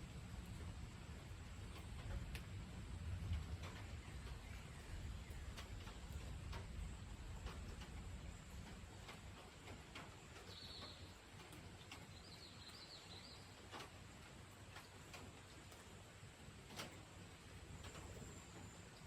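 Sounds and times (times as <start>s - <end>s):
soft ticks: 1.7s - 2.6s, 3.2s - 4.6s, 5.2s - 15.9s, 17.8s - 19.0s
bird chirping: 10.4s - 11.2s, 12.0s - 13.5s.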